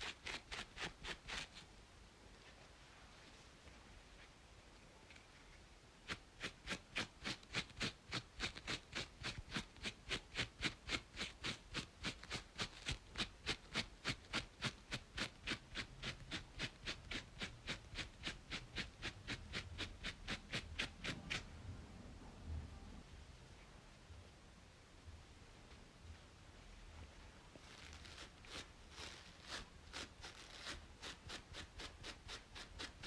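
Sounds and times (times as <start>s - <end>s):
scratching on braided scalp: 0.0s - 1.7s, 5.1s - 21.5s, 27.5s - 33.0s.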